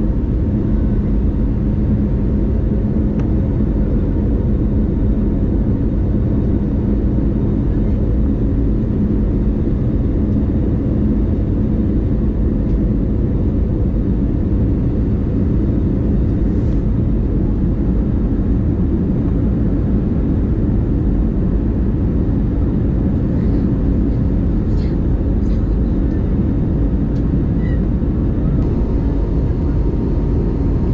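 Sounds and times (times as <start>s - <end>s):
airliner cabin rumble: 0.0s - 30.9s
low steady hum: 0.0s - 30.9s.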